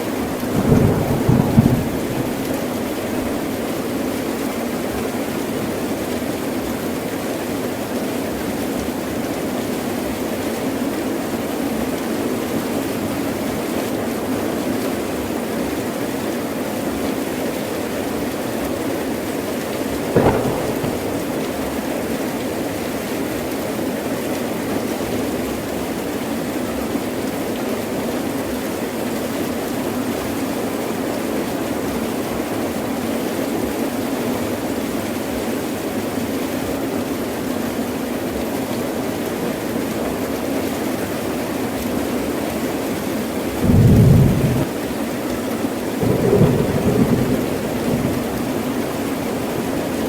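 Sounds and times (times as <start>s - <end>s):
heavy rain: 0.0s - 50.0s
thunder crack: 0.4s - 3.4s, 20.1s - 21.8s, 43.6s - 44.7s, 46.0s - 50.0s.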